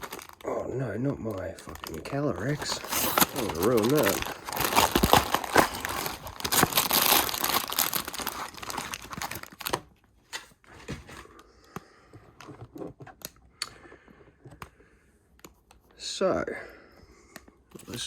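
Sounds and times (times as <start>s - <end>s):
packaging torn and crinkled: 0.0s - 9.9s.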